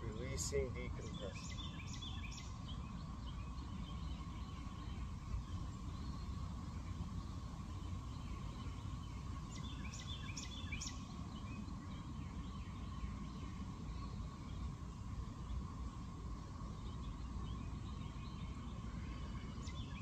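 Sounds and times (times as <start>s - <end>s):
bird chirping: 0.0s - 15.7s, 16.6s - 20.0s
faint steady tone: 0.0s - 20.0s
low background rumble: 0.0s - 20.0s.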